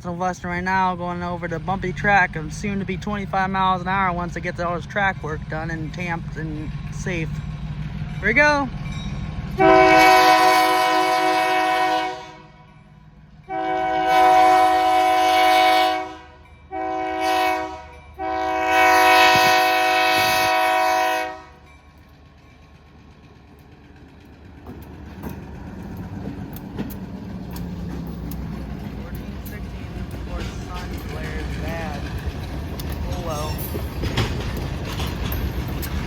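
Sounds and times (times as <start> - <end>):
train rumble: 0.0 - 36.0
locomotive air horn blasts: 9.6 - 12.7, 13.5 - 21.6.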